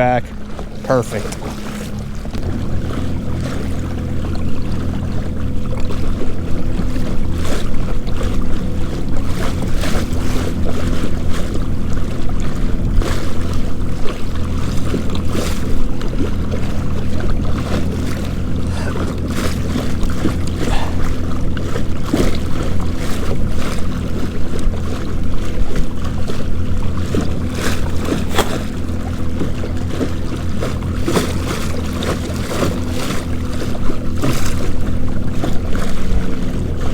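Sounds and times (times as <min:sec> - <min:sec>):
waves splashing against hull: 0:00.0 - 0:36.9.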